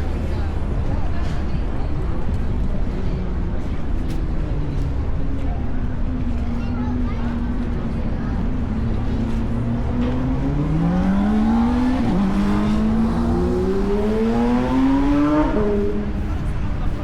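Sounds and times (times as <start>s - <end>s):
vehicle engine accelerating: 7.2s - 17.0s.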